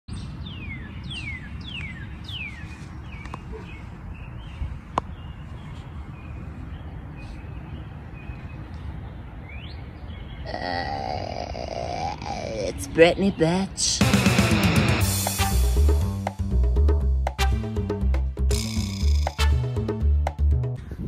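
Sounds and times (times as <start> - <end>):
bird chirps: 0.1 - 10.9, 18.5 - 19.5.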